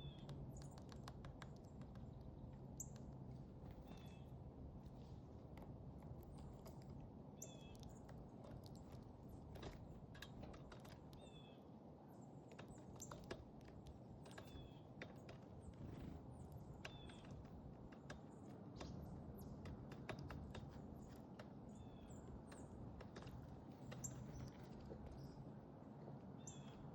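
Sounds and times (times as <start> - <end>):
light clicks and taps: 0.0 - 11.5, 12.4 - 25.4
faint low rumble: 0.0 - 14.8
songbirds chirping: 0.0 - 26.9.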